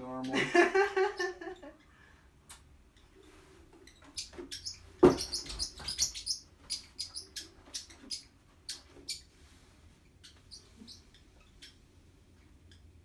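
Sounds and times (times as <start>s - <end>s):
bird chirping: 2.9s - 13.0s.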